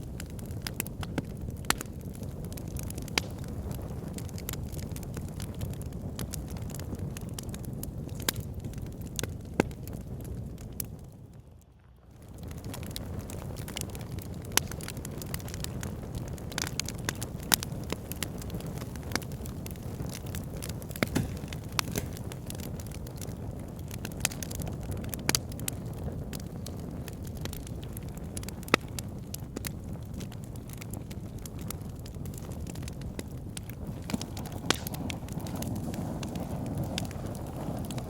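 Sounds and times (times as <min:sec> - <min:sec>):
fire crackling and popping: 0:00.0 - 0:38.0
fire rumbling: 0:00.0 - 0:38.0.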